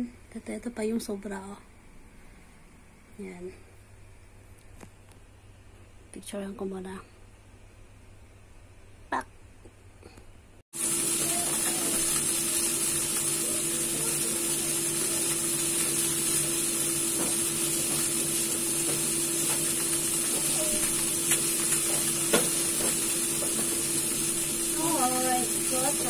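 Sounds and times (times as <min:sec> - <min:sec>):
food sizzling in hot oil: 0:10.8 - 0:26.0.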